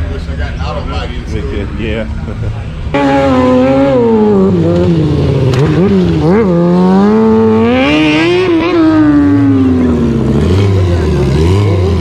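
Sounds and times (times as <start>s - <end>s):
hot rod engine revving: 2.8s - 12.0s.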